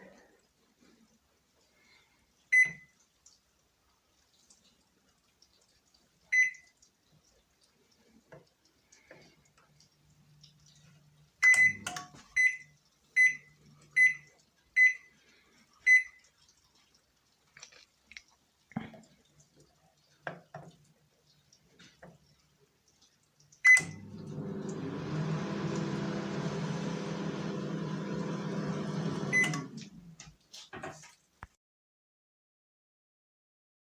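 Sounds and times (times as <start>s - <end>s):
microwave beeps: 2.6s - 3.0s, 6.4s - 6.7s, 11.4s - 15.1s, 15.9s - 16.2s, 23.7s - 29.8s
microwave oven humming: 11.4s - 12.2s, 23.7s - 29.9s.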